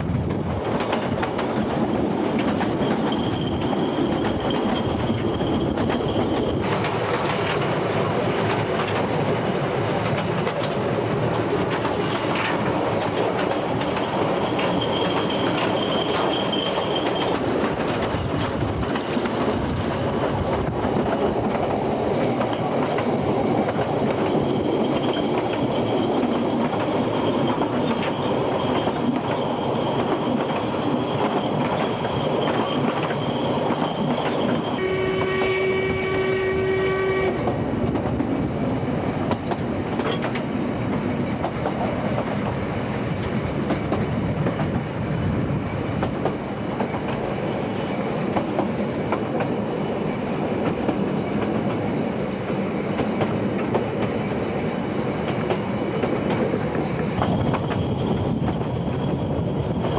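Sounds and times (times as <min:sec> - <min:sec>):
train wheels clattering on rails: 0:00.0 - 0:59.9
wheel squeals: 0:02.5 - 0:06.6, 0:13.4 - 0:20.2, 0:24.2 - 0:34.8
locomotive horn blast: 0:34.8 - 0:37.5.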